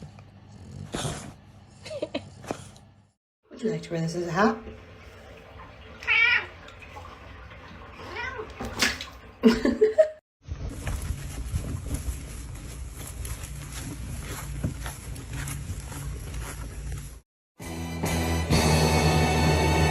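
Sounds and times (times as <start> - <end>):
cat meowing: 6.0 - 6.5.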